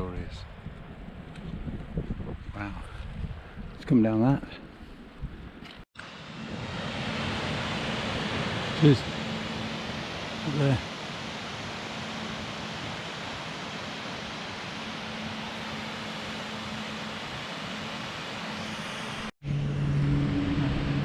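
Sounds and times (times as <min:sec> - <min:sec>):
steady rushing noise: 0:06.0 - 0:21.0
low held tones: 0:18.2 - 0:21.0.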